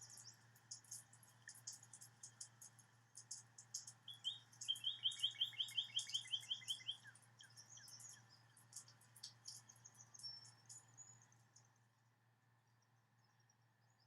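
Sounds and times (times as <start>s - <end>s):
birds chirping: 3.3s - 11.3s
bird trilling: 4.1s - 7.0s.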